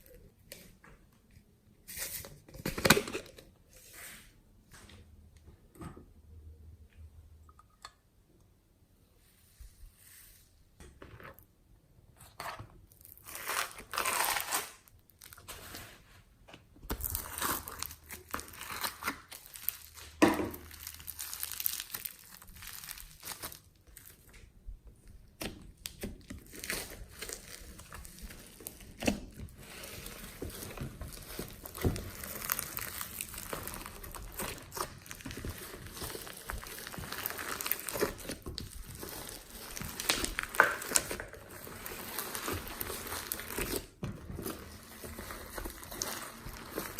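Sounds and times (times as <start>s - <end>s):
hands squishing slime: 25.0s - 46.9s.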